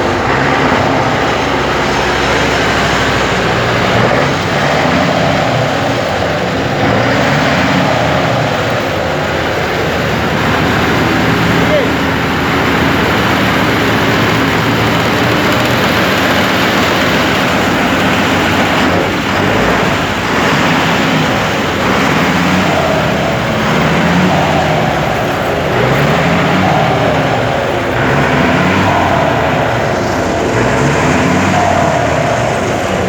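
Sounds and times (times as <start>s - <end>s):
diesel truck engine revving: 0.0s - 33.0s.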